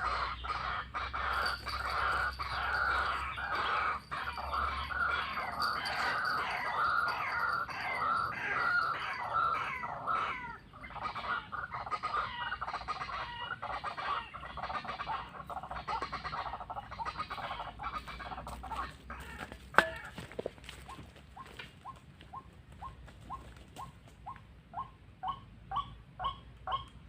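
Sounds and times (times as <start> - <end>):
bird harsh calls: 0.0 - 20.3.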